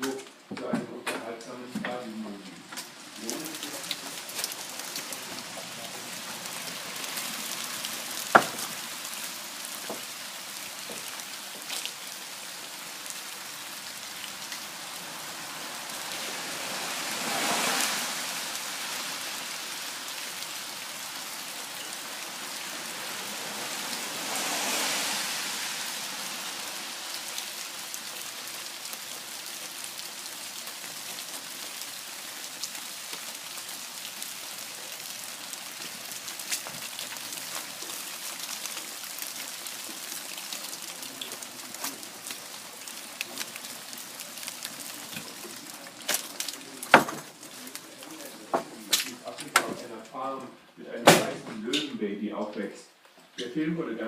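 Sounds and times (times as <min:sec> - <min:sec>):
rain falling: 0:00.0 - 0:54.0
sharp knock: 0:08.4 - 0:08.6, 0:51.1 - 0:51.6
rushing noise: 0:14.7 - 0:19.5, 0:22.7 - 0:27.0.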